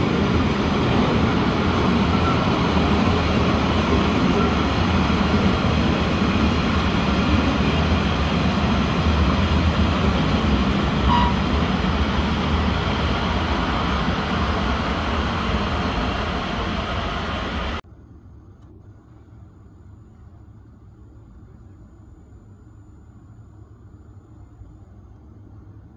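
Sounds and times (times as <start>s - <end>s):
freight train wheels rumbling on rails: 0.0s - 17.8s.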